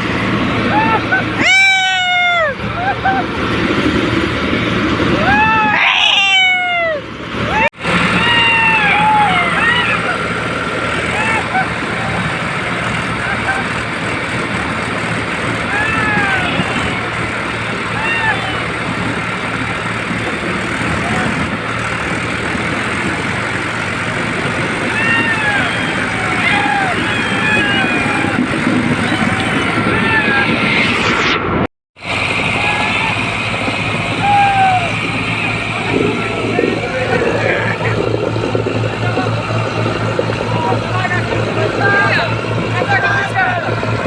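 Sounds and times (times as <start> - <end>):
tractor engines rumbling: 0.0 - 44.0
people shouting long calls: 5.2 - 30.9, 32.1 - 38.0.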